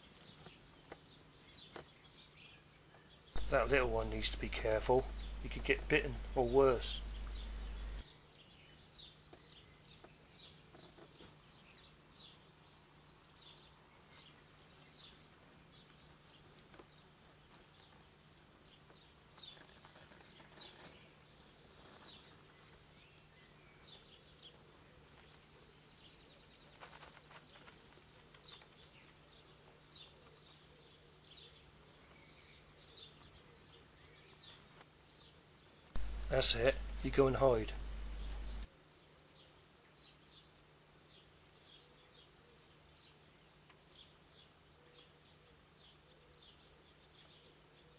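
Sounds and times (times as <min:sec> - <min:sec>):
woodland birdsong: 0:00.0 - 0:47.9
bird trill: 0:23.1 - 0:24.2.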